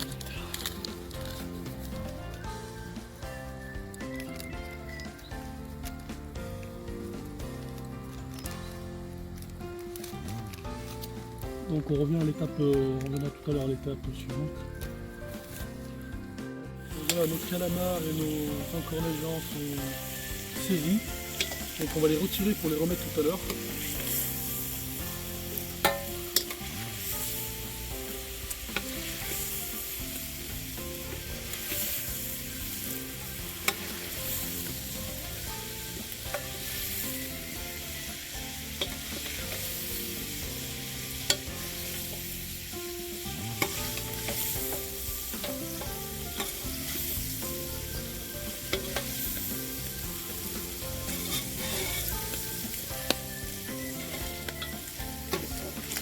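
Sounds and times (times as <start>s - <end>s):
squid sizzling in a frying pan: 0.0s - 12.8s, 14.7s - 56.0s
utensil clicking against pan: 41.2s - 42.3s.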